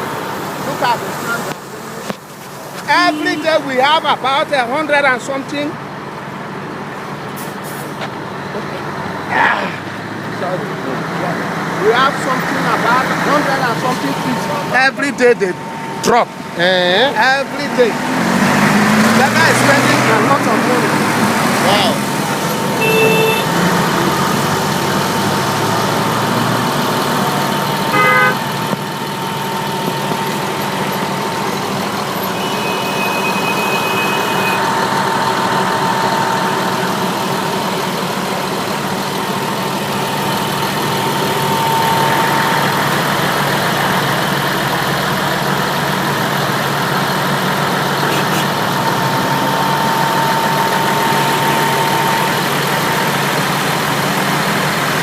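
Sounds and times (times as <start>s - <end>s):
heavy vehicle engines idling: 0.0s - 55.0s
horn blast: 2.8s - 4.1s, 22.7s - 24.7s, 27.2s - 28.6s, 40.0s - 44.9s, 47.1s - 53.9s.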